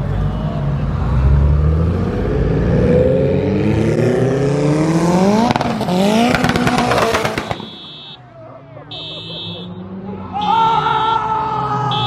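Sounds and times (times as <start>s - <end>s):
car engine accelerating hard: 0.0s - 7.6s
exhaust crackles: 4.6s - 7.9s.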